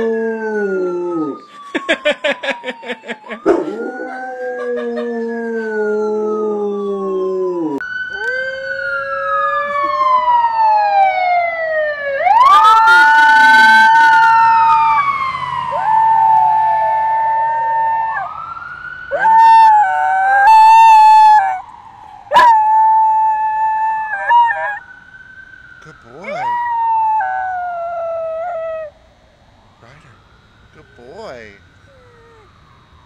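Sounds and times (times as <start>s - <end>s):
dog howling: 0.0s - 10.2s, 19.1s - 21.6s, 22.3s - 24.8s, 26.1s - 28.9s, 31.8s - 32.5s
emergency siren wailing: 0.0s - 33.0s.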